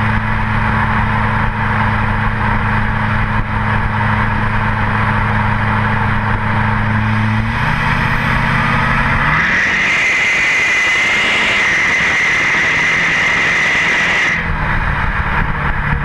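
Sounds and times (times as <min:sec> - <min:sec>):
diesel engine drone: 0:00.0 - 0:16.0.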